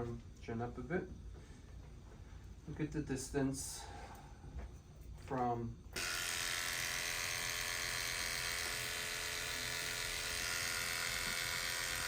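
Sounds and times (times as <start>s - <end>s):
electric hair clippers buzzing: 6.0s - 12.0s.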